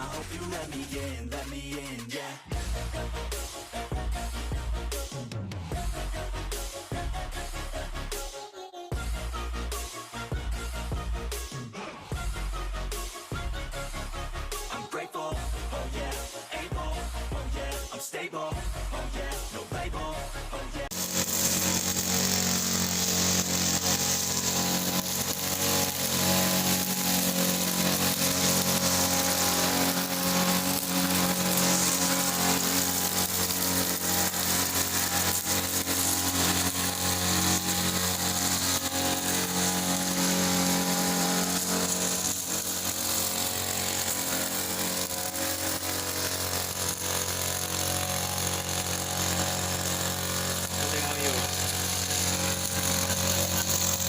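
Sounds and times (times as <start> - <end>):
lawn mower engine running: 19.0 - 54.0.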